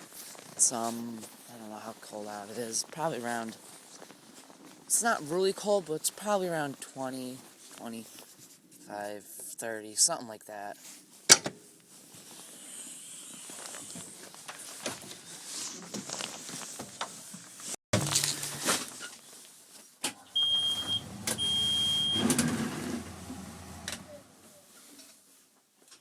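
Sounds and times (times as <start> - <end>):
high-pitched warning beeps: 20.4 - 22.3.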